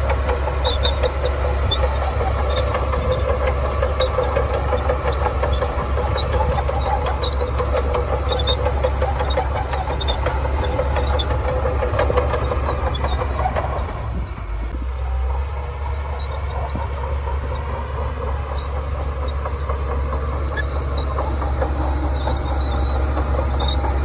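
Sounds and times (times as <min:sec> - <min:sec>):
bulldozer diesel engine rumble: 0:00.0 - 0:24.0.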